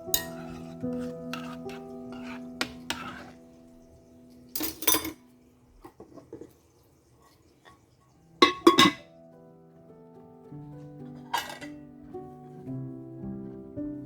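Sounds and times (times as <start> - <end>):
kitchenware clinking and clattering: 0.0 - 9.2, 11.0 - 12.0
soft background music: 0.0 - 14.0.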